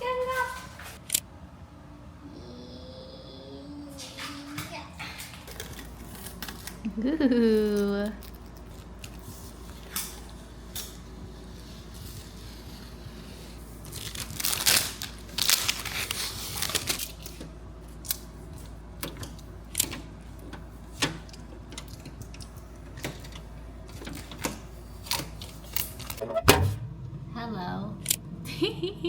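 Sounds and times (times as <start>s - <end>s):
plastic film crinkling and tearing: 13.8s - 17.4s.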